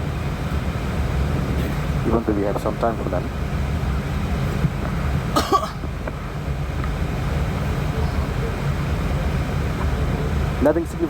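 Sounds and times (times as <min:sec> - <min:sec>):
airliner cockpit engine rumble: 0:00.0 - 0:11.0
person coughing: 0:05.4 - 0:05.8.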